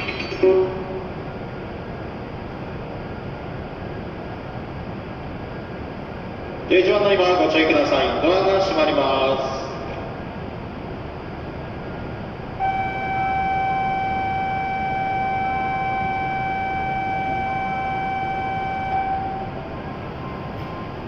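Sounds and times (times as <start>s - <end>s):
station hum: 9.8s - 21.0s
electronic warning tone: 12.6s - 21.0s.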